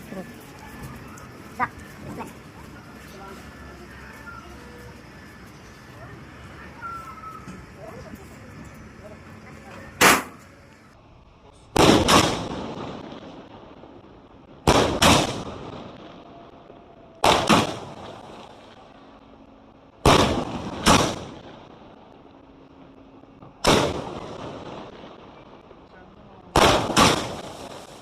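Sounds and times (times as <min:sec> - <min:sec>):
firework bangs with rolling echo: 0:11.7 - 0:19.0, 0:20.0 - 0:22.1, 0:23.5 - 0:28.0.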